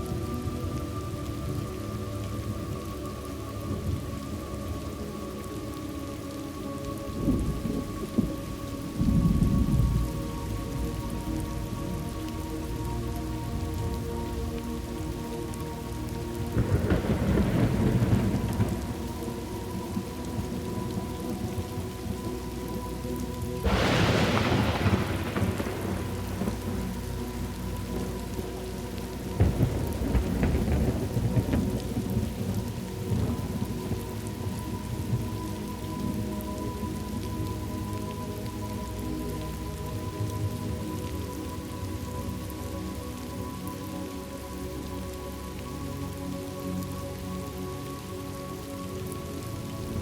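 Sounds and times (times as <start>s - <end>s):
steady rain falling: 0.0s - 50.0s
thunder rumbling: 7.0s - 15.3s, 16.2s - 22.8s, 23.6s - 38.0s.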